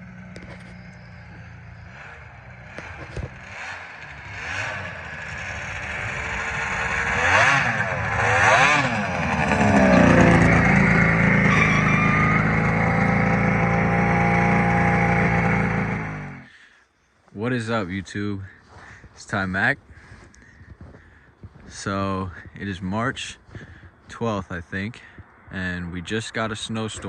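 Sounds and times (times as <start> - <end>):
snowmobile engine revving: 0.0 - 16.5.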